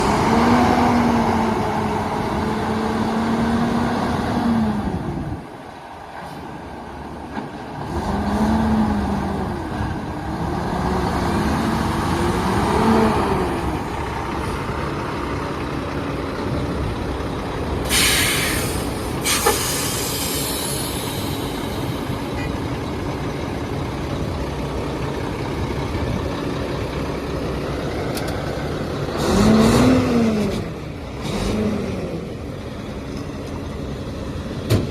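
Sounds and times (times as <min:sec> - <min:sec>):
diesel truck engine revving: 0:00.0 - 0:34.9
air brake hiss: 0:17.8 - 0:22.0.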